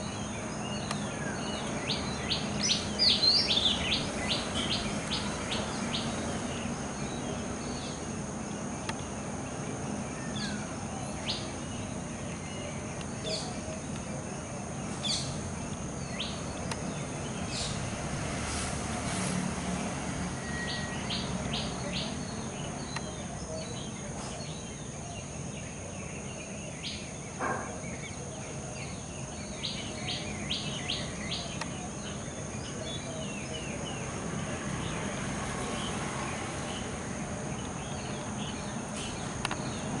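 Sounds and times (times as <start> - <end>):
high insect drone: 0.0 - 40.0
wild birds chirping: 0.0 - 40.0.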